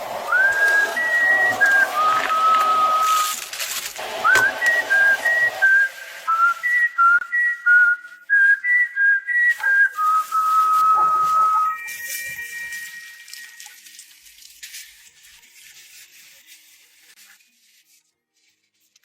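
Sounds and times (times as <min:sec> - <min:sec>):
hissing noise: 0:00.0 - 0:07.0
person whistling a tune: 0:00.2 - 0:03.4, 0:04.2 - 0:13.7.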